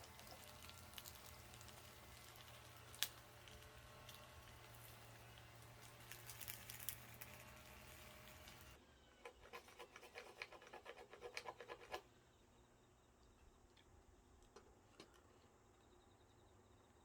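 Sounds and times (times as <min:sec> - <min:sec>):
wood-stove fire crackling: 0:00.0 - 0:12.0
quick light clicks and scratches: 0:00.0 - 0:12.1.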